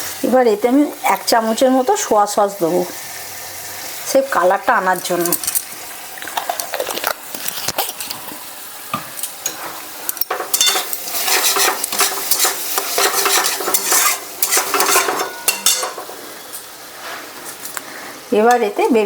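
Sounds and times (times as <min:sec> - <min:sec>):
sauce sizzling: 0:00.0 - 0:19.0
spatula stirring and scraping: 0:09.4 - 0:16.2
spatula clinking against pan: 0:10.2 - 0:16.1.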